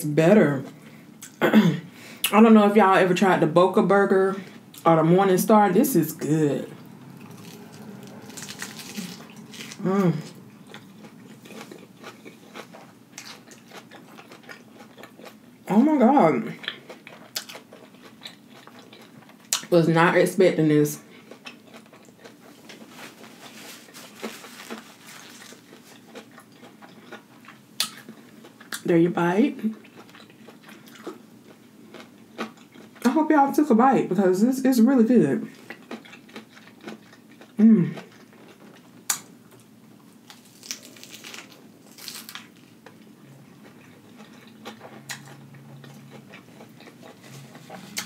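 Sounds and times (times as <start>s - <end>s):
biting into a burger: 7.2s - 15.4s, 40.2s - 43.0s
chewing with wet mouth clicks: 10.6s - 15.4s, 16.6s - 19.7s, 25.7s - 28.8s, 29.7s - 33.0s, 35.5s - 39.7s, 42.8s - 48.0s.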